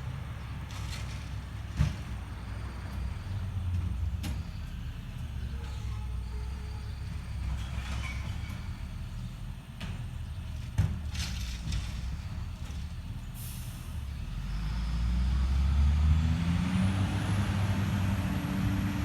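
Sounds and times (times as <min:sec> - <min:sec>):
truck engine rumble: 0:00.0 - 0:19.0
truck clunks: 0:00.6 - 0:02.7, 0:03.7 - 0:06.1, 0:09.6 - 0:13.8.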